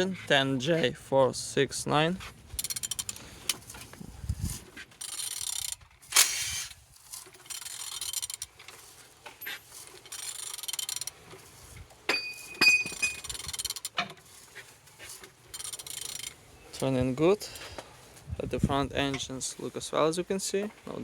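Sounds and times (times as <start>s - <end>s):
ratchet wrench clicking: 2.6s - 3.7s, 5.0s - 8.6s, 9.4s - 11.2s, 12.1s - 14.1s, 15.5s - 16.4s
metallic clank: 12.1s - 13.4s
ringing metal clink: 12.1s - 13.4s.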